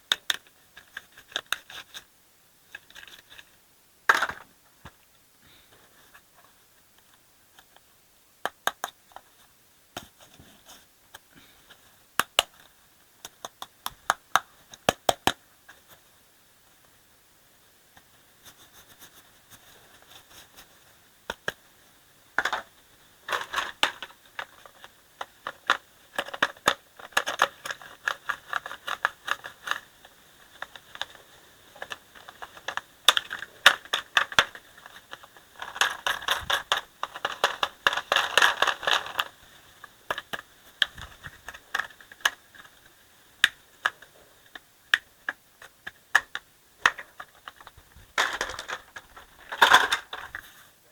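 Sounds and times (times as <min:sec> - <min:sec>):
plastic toy parts clattering: 0:02.7 - 0:04.5, 0:22.4 - 0:44.6, 0:45.2 - 0:50.4.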